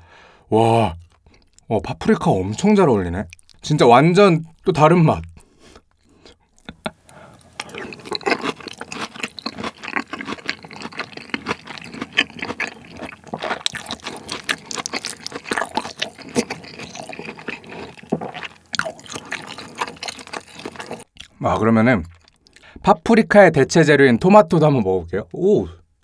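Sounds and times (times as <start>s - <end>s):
close chewing with mouth clicks: 1.0s - 1.7s, 3.1s - 3.8s, 4.4s - 21.4s, 22.0s - 22.8s.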